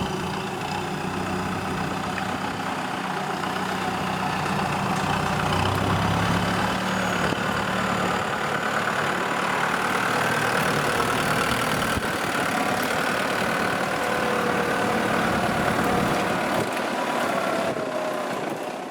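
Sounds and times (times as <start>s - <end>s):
tractor diesel engine running: 0.0s - 18.9s.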